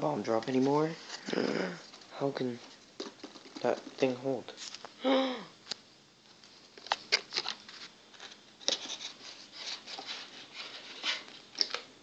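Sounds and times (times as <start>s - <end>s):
person humming: 1.3s - 1.8s, 5.0s - 5.6s.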